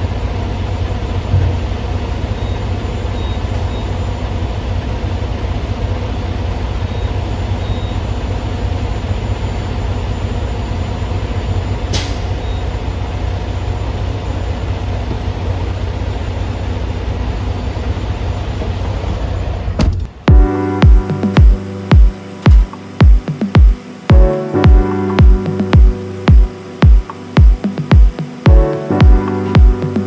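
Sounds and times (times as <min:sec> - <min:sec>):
truck diesel engine running: 0:00.0 - 0:19.8.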